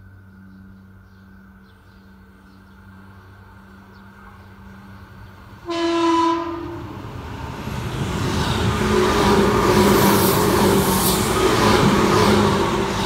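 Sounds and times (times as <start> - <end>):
train wheel and rail noise: 0.0 - 13.0
train horn blast: 5.6 - 7.2.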